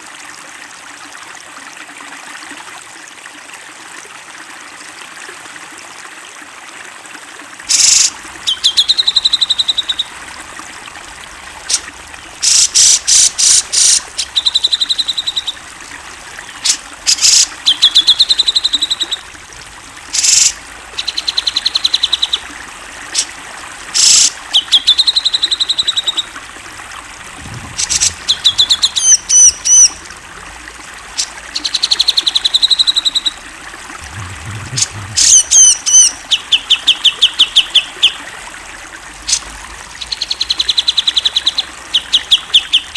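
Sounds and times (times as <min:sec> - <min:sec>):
trickle of running water: 0:00.0 - 0:42.9
bulbul singing harsh trills: 0:07.7 - 0:23.4, 0:27.8 - 0:30.2.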